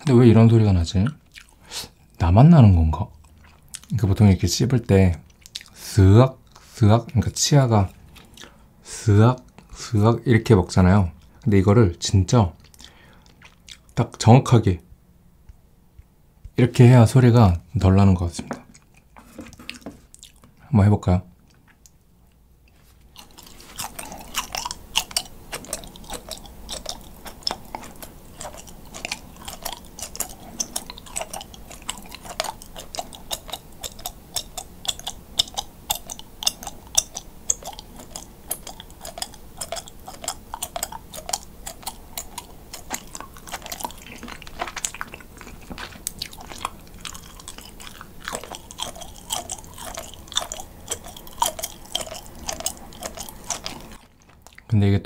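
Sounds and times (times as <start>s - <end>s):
chewing squeaky cheese: 22.7s - 54.7s.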